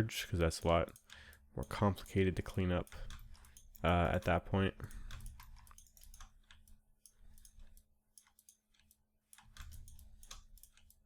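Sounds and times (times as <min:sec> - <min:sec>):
computer mouse clicks: 0:00.6 - 0:11.0
keyboard keys clicking: 0:00.7 - 0:06.7.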